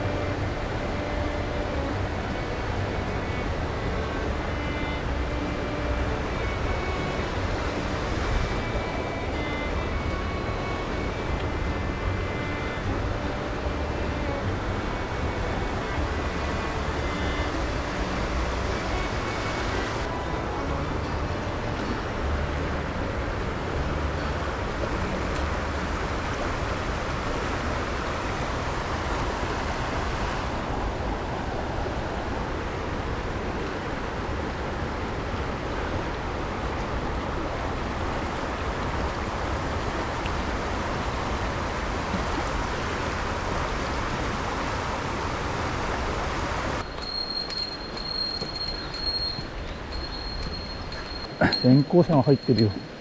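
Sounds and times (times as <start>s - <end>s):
stream rushing over rocks: 0.0s - 53.0s.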